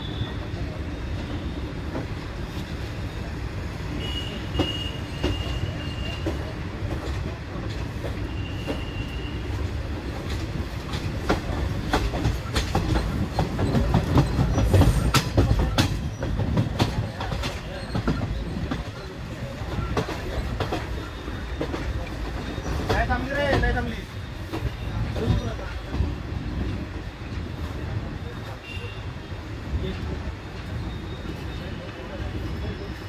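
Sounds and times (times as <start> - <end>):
train wheels rumbling: 0.0 - 33.0
wheels clacking over rail joints: 9.8 - 26.8.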